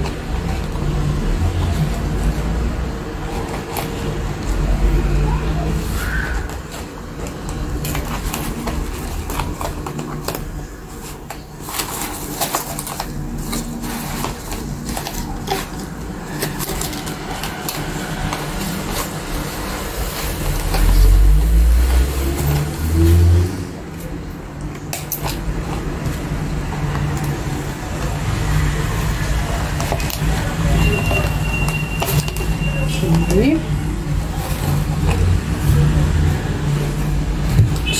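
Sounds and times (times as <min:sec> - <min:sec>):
packaging clicks and rustles: 0:00.0 - 0:37.9.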